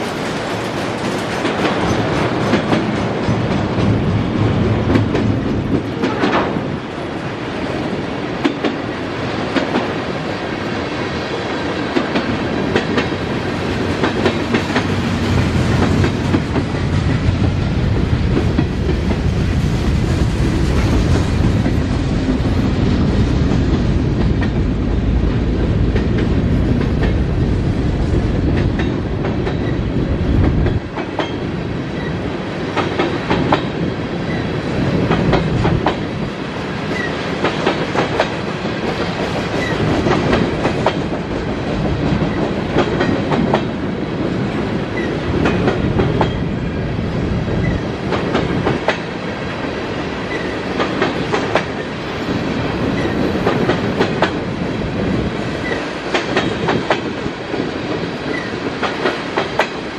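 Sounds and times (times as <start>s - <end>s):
wheels clicking over rail joints: 0.0s - 6.6s
freight train cars rumbling: 0.0s - 59.9s.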